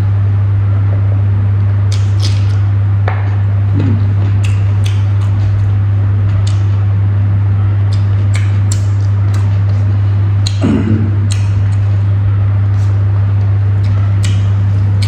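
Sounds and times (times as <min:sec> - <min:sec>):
loud steady low hum: 0:00.0 - 0:15.0
brief low vocal sound: 0:03.7 - 0:04.2, 0:10.6 - 0:11.3
wet chewing smacks: 0:03.8 - 0:06.8, 0:07.9 - 0:12.1, 0:12.7 - 0:15.0.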